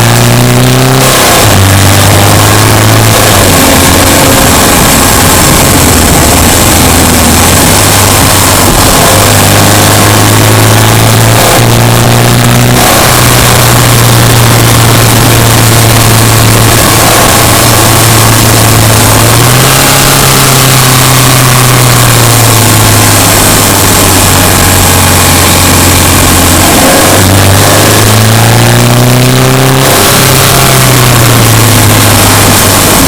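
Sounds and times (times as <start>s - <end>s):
car engine under load: 0.0s - 33.0s.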